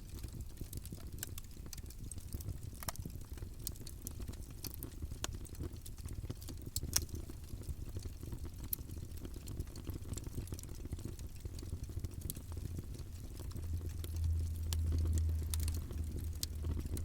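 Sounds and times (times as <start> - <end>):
campfire flames rumbling: 0.0 - 17.0
wood crackling and popping: 0.0 - 17.0.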